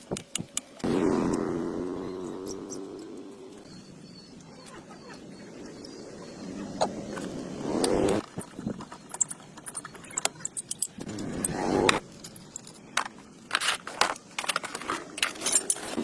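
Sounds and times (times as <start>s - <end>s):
metal objects clinking: 8.3s - 16.0s.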